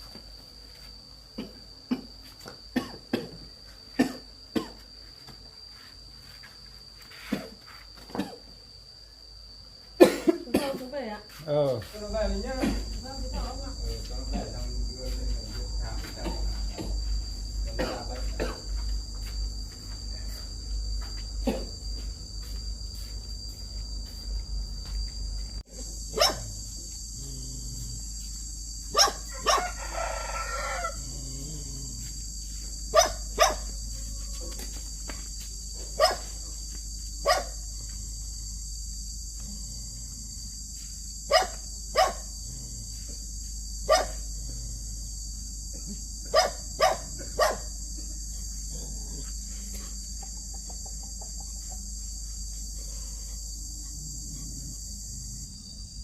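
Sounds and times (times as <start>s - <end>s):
crickets droning: 0.0s - 56.0s
dog barking: 26.1s - 26.6s, 28.9s - 29.8s, 32.9s - 33.7s, 36.0s - 36.3s, 37.2s - 37.6s, 41.3s - 42.3s, 43.9s - 44.2s, 46.2s - 47.7s
rooster crowing: 29.2s - 31.3s.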